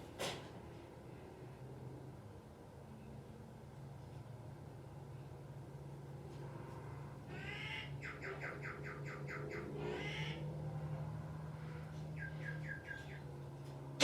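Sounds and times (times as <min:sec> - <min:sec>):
wild bird calling: 0:07.3 - 0:10.8, 0:11.9 - 0:13.4.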